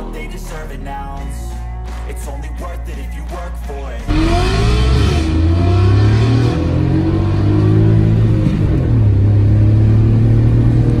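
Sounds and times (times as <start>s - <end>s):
car engine revving: 4.1s - 11.0s.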